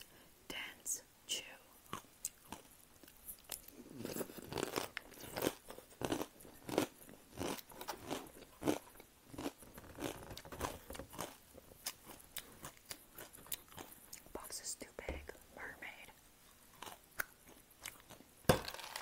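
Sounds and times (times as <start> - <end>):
chewing crunchy cereal: 1.8 - 14.5, 16.4 - 19.0.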